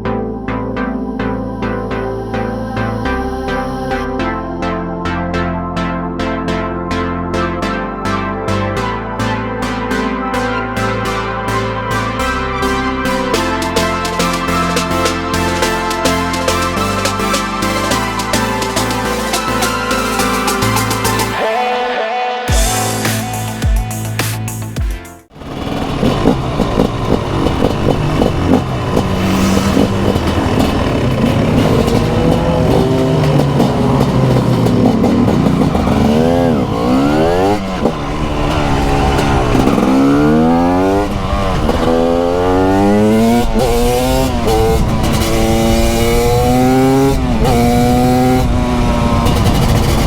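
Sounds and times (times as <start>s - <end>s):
motorcycle engine revving: 25.3s - 50.0s.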